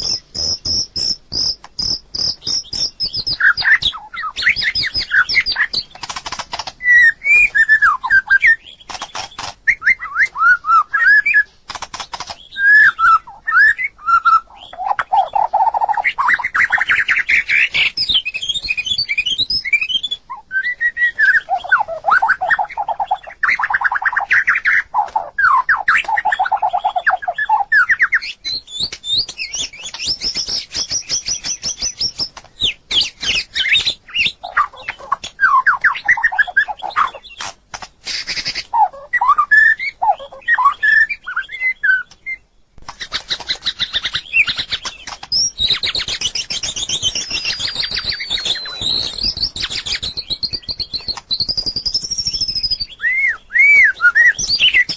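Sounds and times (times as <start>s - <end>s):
bird singing whistled phrases: 0.0s - 5.9s, 6.8s - 11.5s, 12.2s - 37.4s, 38.1s - 54.9s.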